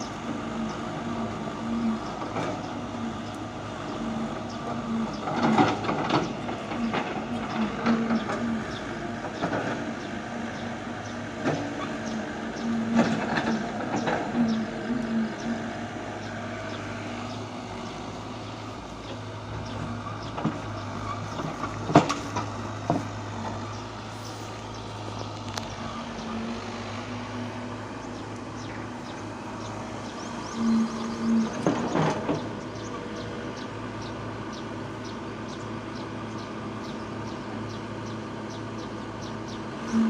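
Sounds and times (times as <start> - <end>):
heavy machinery engine running: 0.0 - 40.0
knocks and clanks: 19.0 - 23.8, 31.4 - 32.5.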